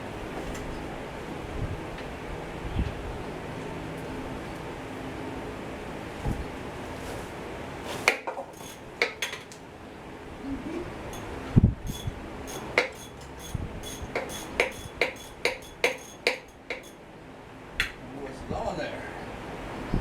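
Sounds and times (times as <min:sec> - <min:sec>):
metal tools tapping engine parts: 0:08.5 - 0:09.6, 0:11.9 - 0:17.0.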